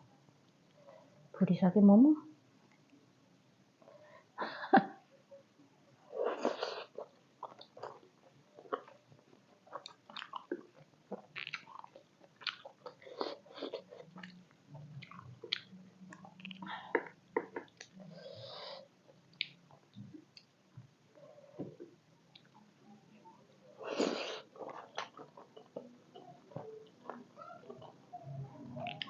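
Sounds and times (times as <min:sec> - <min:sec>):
wet chewing clicks and smacks: 0:09.7 - 0:18.0.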